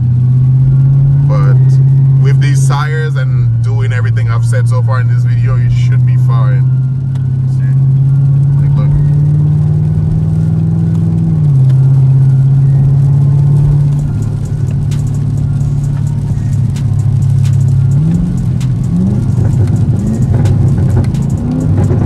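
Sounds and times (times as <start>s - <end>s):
car engine accelerating: 0.0s - 22.0s
light ticks: 13.0s - 22.0s.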